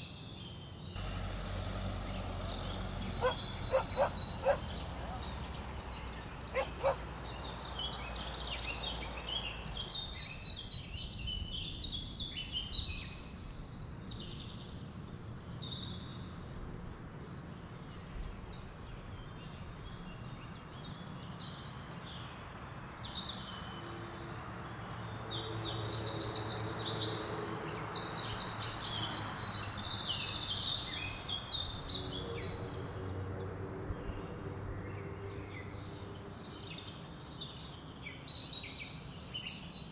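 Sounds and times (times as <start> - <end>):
wild birds singing and chirping: 0.0 - 15.9, 24.8 - 39.9.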